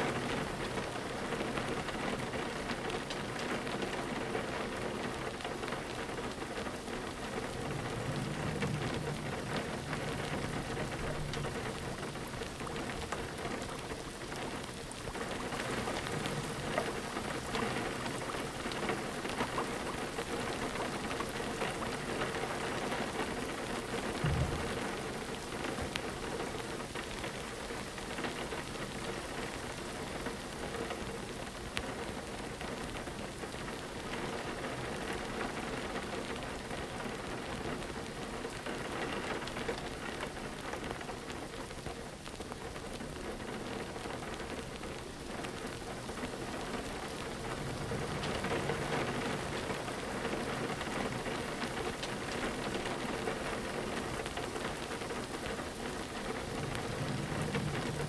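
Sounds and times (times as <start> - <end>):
rain pattering on a window: 0.0 - 58.0
low thump: 24.2 - 25.0.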